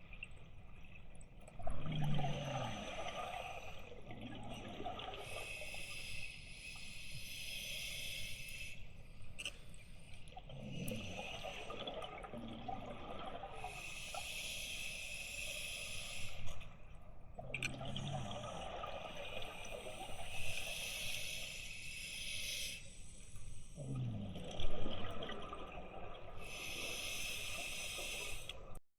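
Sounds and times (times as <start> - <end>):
exhaled bubbles gurgling: 1.5 - 5.9, 10.4 - 14.4, 17.4 - 21.4, 23.8 - 28.8.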